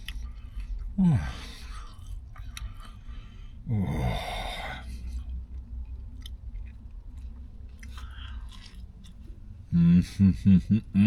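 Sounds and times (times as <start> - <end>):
person chewing a sandwich: 0.0 - 10.2
steady low hum: 0.0 - 11.0
person sighing: 1.0 - 1.4, 3.7 - 4.8.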